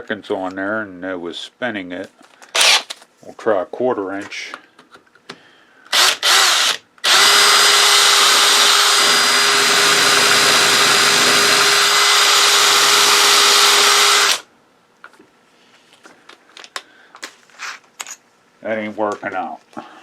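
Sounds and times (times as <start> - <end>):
electric drill drilling metal: 2.6 - 2.9, 5.9 - 14.4.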